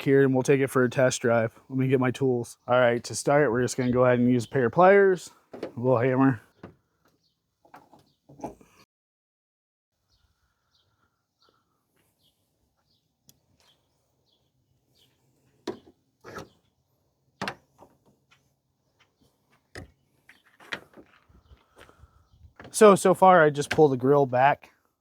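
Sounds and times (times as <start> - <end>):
faint bird chirps: 10.0 - 15.2.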